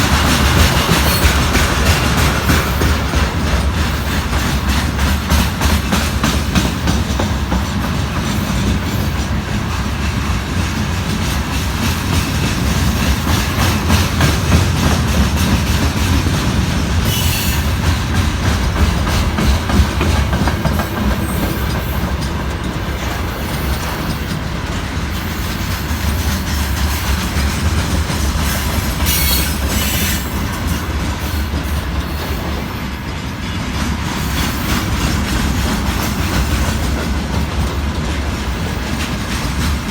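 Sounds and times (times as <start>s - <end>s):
train wheels clicking over rail joints: 0.0s - 39.9s
wheel squeal: 29.0s - 30.4s.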